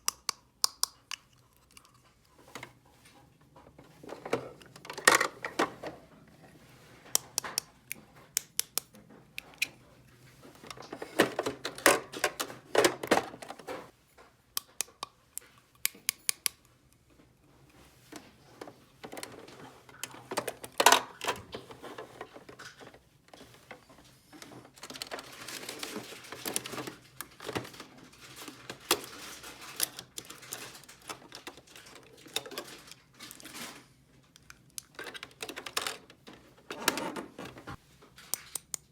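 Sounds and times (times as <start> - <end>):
small objects clicking and tapping: 0.0 - 2.2, 7.2 - 9.7, 14.2 - 16.8, 38.2 - 38.9
rattling and rustling: 35.0 - 37.8.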